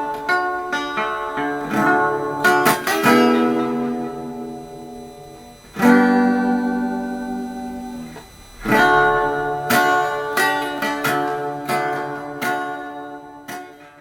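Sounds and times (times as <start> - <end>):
acoustic guitar strummed chords: 0.0 - 14.0.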